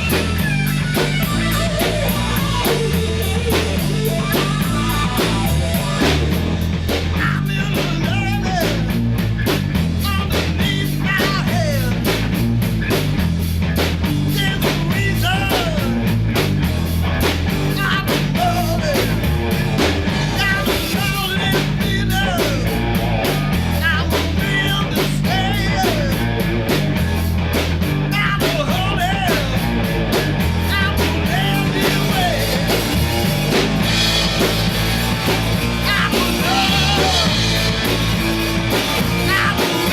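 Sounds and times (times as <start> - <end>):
drum kit beat: 0.0 - 39.9
electric guitar: 0.0 - 39.9
person singing: 14.3 - 16.0, 17.6 - 19.3, 20.2 - 22.8, 23.8 - 26.4, 30.6 - 32.9, 35.7 - 37.9, 39.0 - 39.9.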